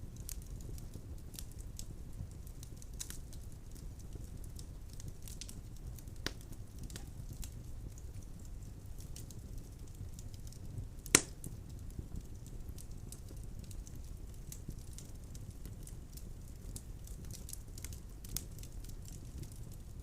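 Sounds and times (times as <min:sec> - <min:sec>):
wood fire crackling: 0:00.0 - 0:20.0
sharp pop of burning log: 0:11.0 - 0:11.4.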